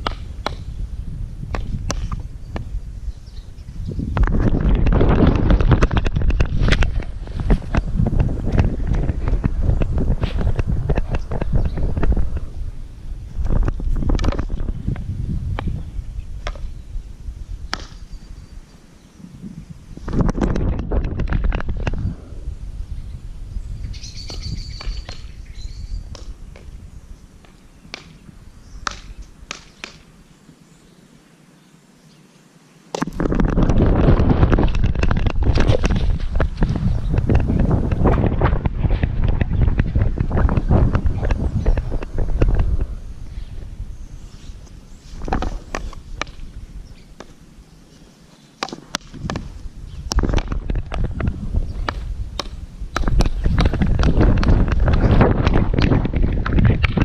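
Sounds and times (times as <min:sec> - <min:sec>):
wind rumbling on microphone: 0:00.0 - 0:30.3, 0:33.0 - 0:57.0
bird chirping: 0:01.9 - 0:04.6, 0:15.6 - 0:20.1, 0:22.0 - 0:32.6, 0:42.7 - 0:48.7.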